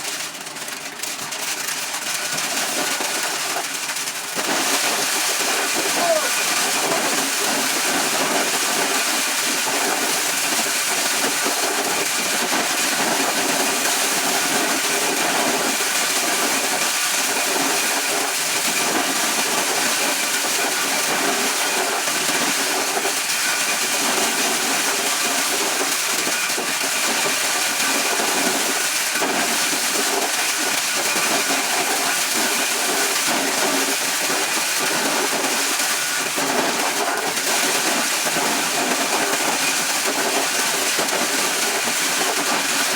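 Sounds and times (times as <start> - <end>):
corn shelling machine running: 0.0 - 42.9.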